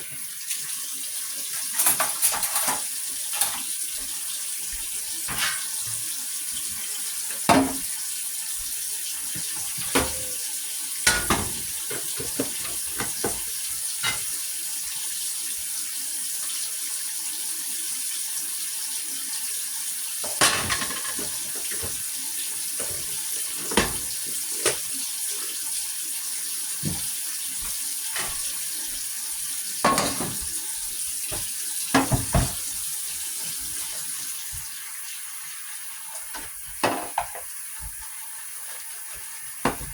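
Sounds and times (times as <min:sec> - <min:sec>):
tap water running into sink: 0:00.0 - 0:39.9
dishes knocking and clinking: 0:01.7 - 0:03.6, 0:05.3 - 0:05.9, 0:07.5 - 0:07.9, 0:09.4 - 0:10.4, 0:11.0 - 0:14.3, 0:20.2 - 0:22.0, 0:22.8 - 0:24.8, 0:27.6 - 0:28.5, 0:29.8 - 0:30.6, 0:31.3 - 0:32.7, 0:36.4 - 0:37.5, 0:39.6 - 0:39.9.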